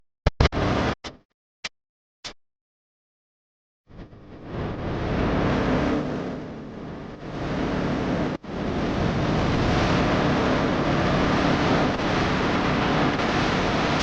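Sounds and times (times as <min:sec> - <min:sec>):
machine engine humming: 0:03.9 - 0:14.0
loud rushing noise: 0:04.5 - 0:14.0.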